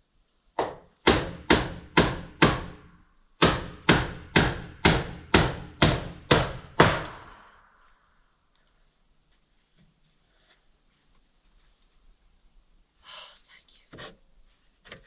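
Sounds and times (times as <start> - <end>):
hammer driving nail into wood: 0.6 - 2.8, 3.4 - 7.3.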